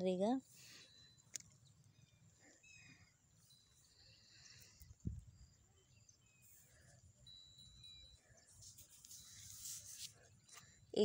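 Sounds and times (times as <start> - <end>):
faint birdsong chirps: 0.0 - 11.0.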